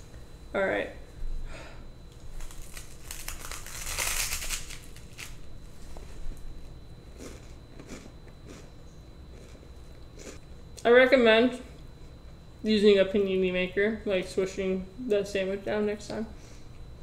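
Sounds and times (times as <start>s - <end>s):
crunchy sandwich chewing: 2.1s - 5.5s, 6.3s - 10.5s.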